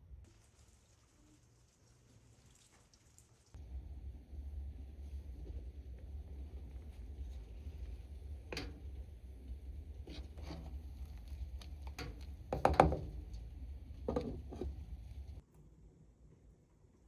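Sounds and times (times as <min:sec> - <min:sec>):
low steady rumble: 0:03.6 - 0:17.0
knocks and clatters: 0:11.9 - 0:13.4, 0:14.1 - 0:14.9.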